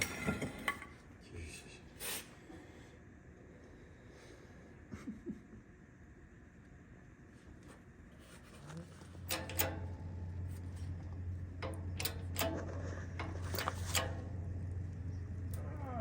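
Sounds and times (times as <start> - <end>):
steady low hum: 0.0 - 16.0
metallic knocks and clanks: 9.3 - 15.6.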